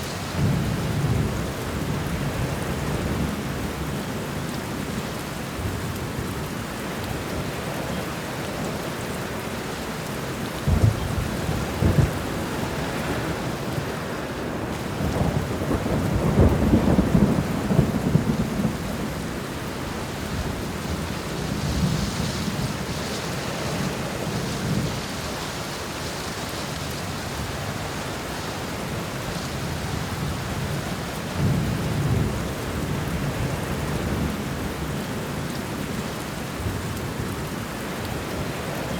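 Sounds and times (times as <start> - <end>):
heavy rain: 0.0 - 38.9
thunder rumbling: 10.6 - 25.7.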